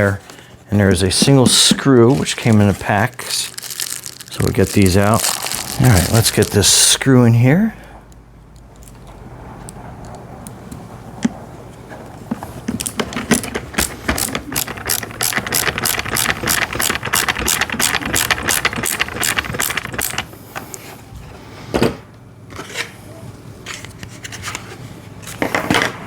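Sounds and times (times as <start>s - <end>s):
screwdriver clicking: 12.8s - 20.3s.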